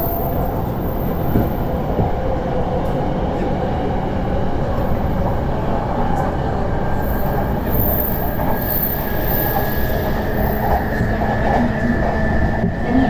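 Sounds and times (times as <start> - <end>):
high-pitched whine: 0.0 - 1.7, 6.9 - 11.9
wheels rumbling on rail: 0.0 - 13.0.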